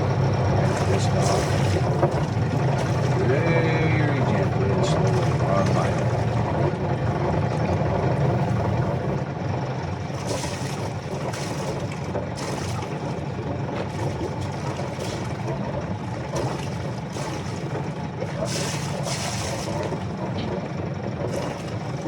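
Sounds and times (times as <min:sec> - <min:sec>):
boat engine running at low speed: 0:00.0 - 0:22.0.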